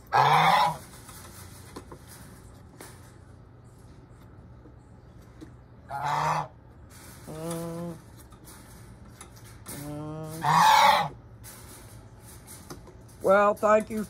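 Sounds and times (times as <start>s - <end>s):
goose honking: 0.0s - 1.0s, 5.9s - 6.6s, 10.3s - 11.2s.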